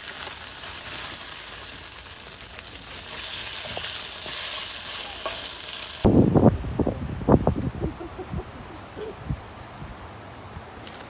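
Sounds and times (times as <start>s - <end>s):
food sizzling in a pan: 0.0s - 6.1s.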